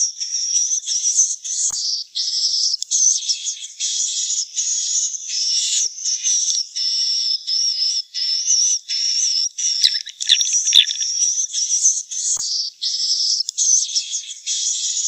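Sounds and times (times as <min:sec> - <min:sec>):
high rapid twittering chirps: 0:09.8 - 0:11.2.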